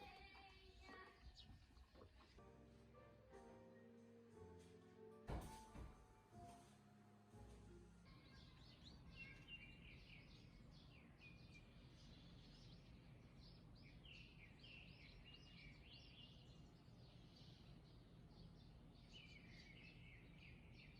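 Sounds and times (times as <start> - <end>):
birds chirping and trilling: 0.0 - 2.4, 8.1 - 20.9.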